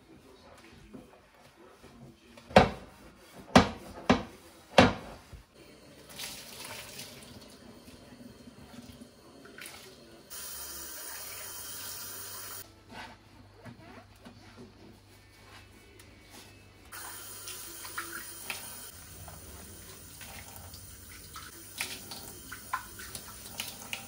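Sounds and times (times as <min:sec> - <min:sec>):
water running from a tap: 0:05.7 - 0:12.6, 0:16.9 - 0:24.0.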